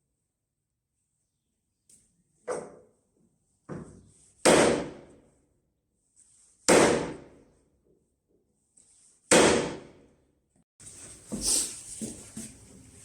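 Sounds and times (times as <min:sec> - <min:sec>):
hammer striking wood: 0:03.7 - 0:05.2, 0:06.7 - 0:07.4, 0:09.3 - 0:10.0.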